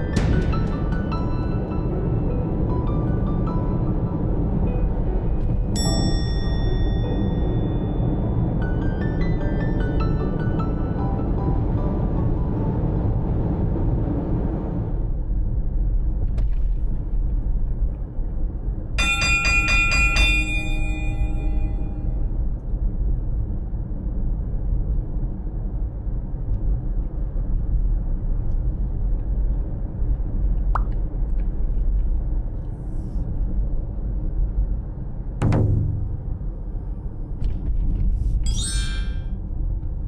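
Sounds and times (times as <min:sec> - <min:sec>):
vehicle road noise: 0:00.0 - 0:18.9
bright chiming jingle: 0:05.8 - 0:08.3, 0:19.0 - 0:22.1, 0:38.5 - 0:39.4.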